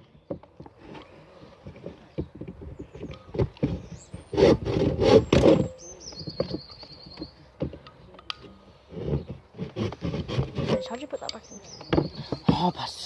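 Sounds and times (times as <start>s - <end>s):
hand tool scraping wood: 0.0s - 12.8s.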